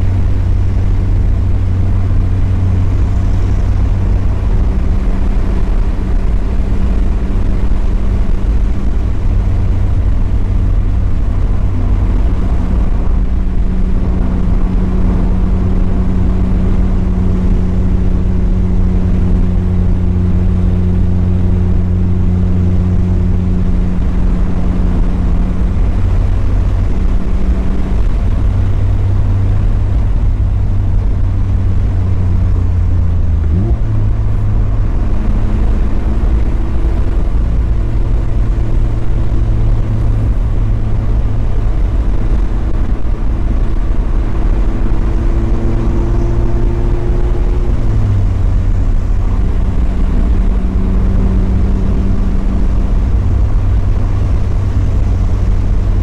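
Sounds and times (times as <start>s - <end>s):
car engine droning: 0.0s - 56.0s
road and tyre noise: 0.0s - 56.0s.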